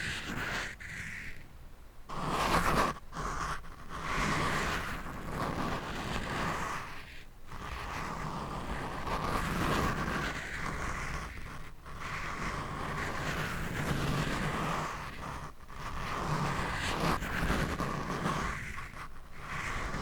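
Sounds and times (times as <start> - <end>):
scratching on microphone: 0.0 - 1.5, 2.1 - 20.0.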